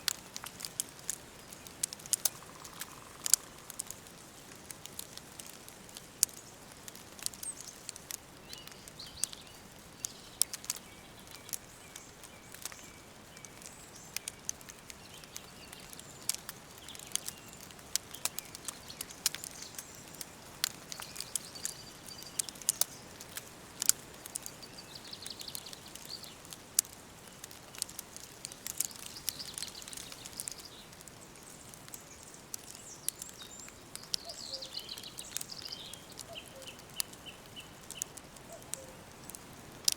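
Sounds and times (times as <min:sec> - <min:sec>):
low hiss: 0:00.0 - 0:39.9
wood fire crackling and popping: 0:00.0 - 0:39.9
faint birds chirping: 0:00.2 - 0:39.9.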